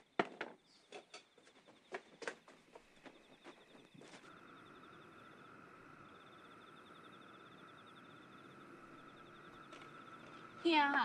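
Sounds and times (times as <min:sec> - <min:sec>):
insects chirping: 0:00.0 - 0:11.0
steady high hum: 0:00.8 - 0:11.0.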